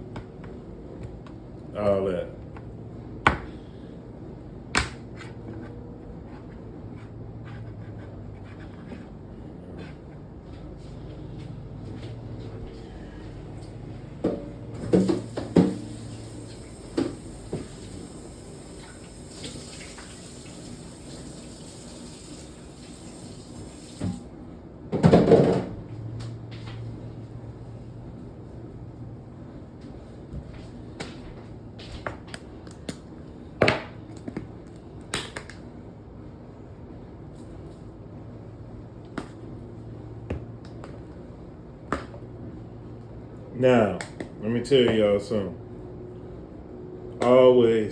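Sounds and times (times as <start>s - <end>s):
kitchen tap running: 14.9s - 24.2s.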